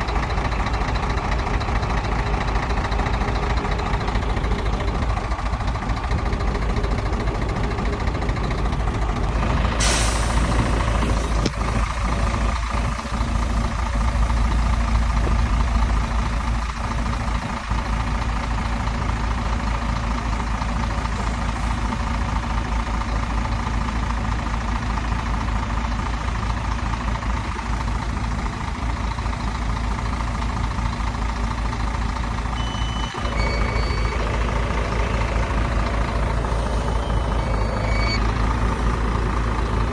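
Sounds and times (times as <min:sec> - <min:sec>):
heavy diesel machinery running: 0:00.0 - 0:39.9
sharp hiss of air: 0:09.8 - 0:11.0
brief high beeps: 0:32.6 - 0:34.2, 0:36.8 - 0:38.4.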